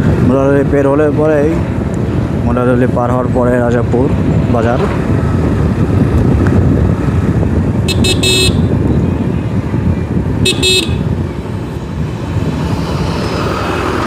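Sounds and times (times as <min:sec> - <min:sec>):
motorcycle engine rumble: 0:00.0 - 0:14.0
vehicle horn toots: 0:07.9 - 0:08.7, 0:10.4 - 0:11.1.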